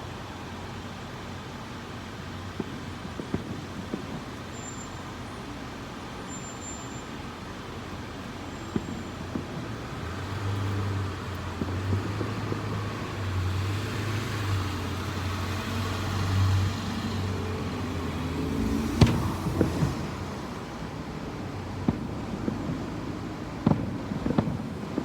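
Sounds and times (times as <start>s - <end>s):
vehicle passing by: 9.7s - 20.8s.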